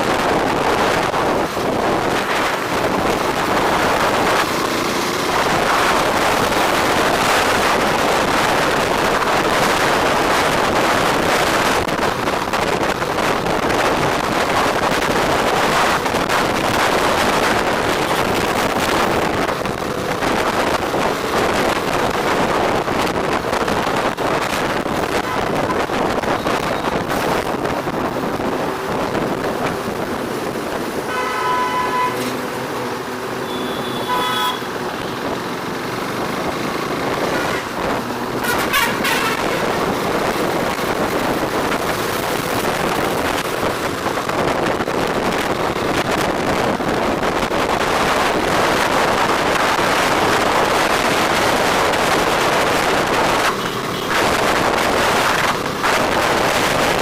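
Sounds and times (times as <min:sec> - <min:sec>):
wind and road noise: 0:00.0 - 0:57.0
vehicle horn honking: 0:31.1 - 0:32.4, 0:33.4 - 0:34.8, 0:38.4 - 0:39.7.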